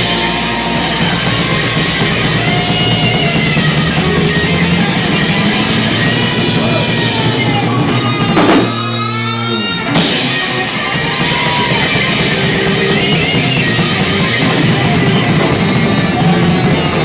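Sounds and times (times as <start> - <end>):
loud drum hit: 0.0 - 8.9
drums: 0.0 - 17.0
electric guitar: 0.0 - 17.0.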